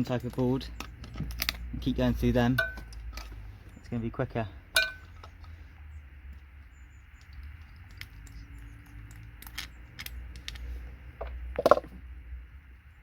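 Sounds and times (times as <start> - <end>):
metal tools clinking: 2.4 - 3.4, 4.8 - 5.4.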